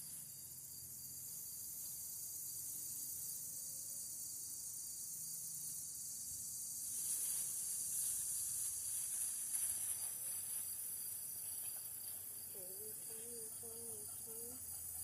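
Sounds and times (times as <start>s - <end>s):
insects droning: 0.0s - 15.0s
rustling: 6.8s - 13.3s.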